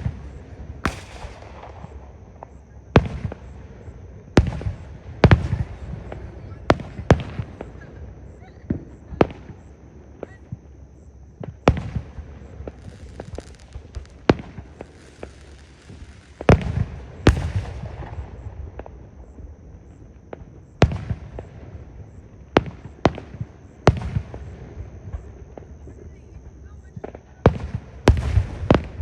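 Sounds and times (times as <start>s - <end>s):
firework shells booming: 0.0s - 3.6s, 11.4s - 19.0s, 27.0s - 29.0s
firework crackling: 0.0s - 7.8s, 11.7s - 19.0s.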